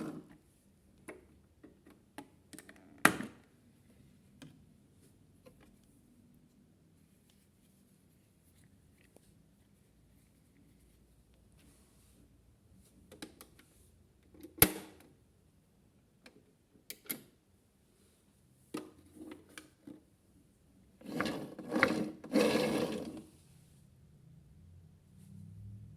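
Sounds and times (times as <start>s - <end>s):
rough scraping noises: 21.0s - 23.3s.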